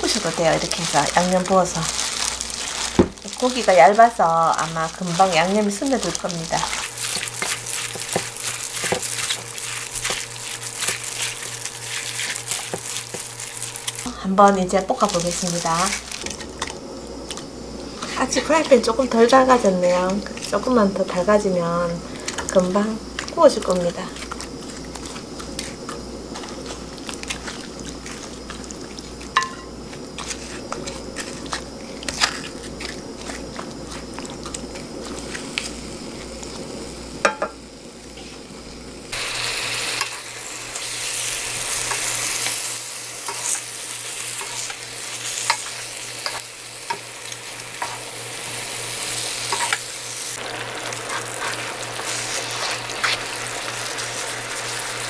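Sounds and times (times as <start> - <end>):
meat sizzling in a frying pan: 0.0 - 55.0
spatulas scraping a pan: 4.7 - 14.1, 22.1 - 35.8, 41.2 - 47.0, 49.1 - 49.8, 50.9 - 54.0.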